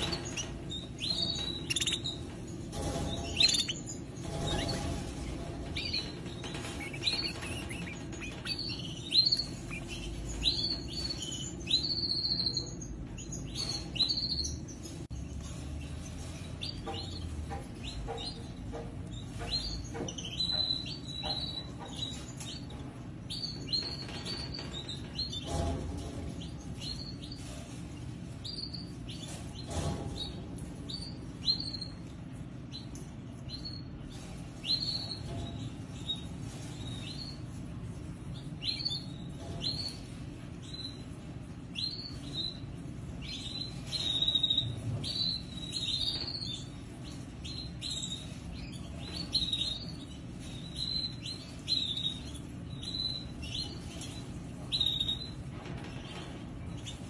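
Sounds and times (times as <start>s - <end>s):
cage birds chirping: 0.0s - 57.0s.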